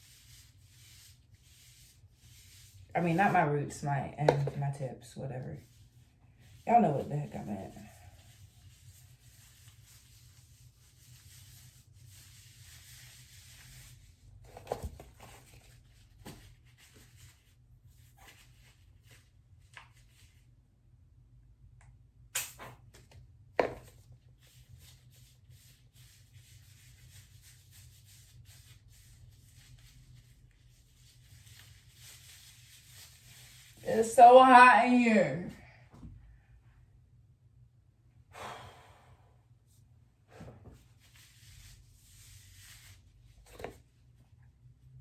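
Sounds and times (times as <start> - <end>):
hands rubbing hair: 25.2 - 35.3.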